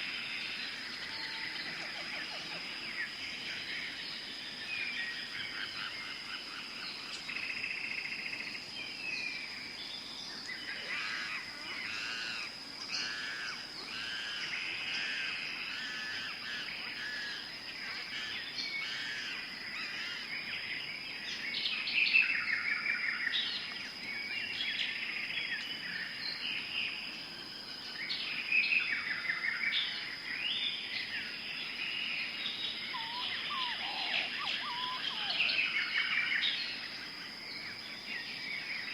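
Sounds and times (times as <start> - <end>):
birds chirping and calling: 10.2 - 20.7, 32.0 - 36.8.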